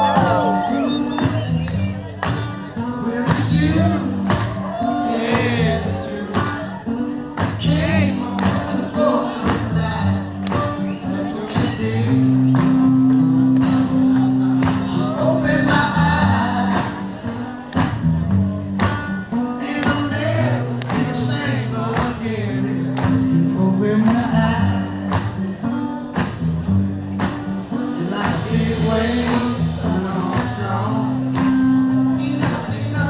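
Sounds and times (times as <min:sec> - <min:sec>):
live rock band playing: 0:00.0 - 0:33.0
person singing: 0:13.7 - 0:17.6.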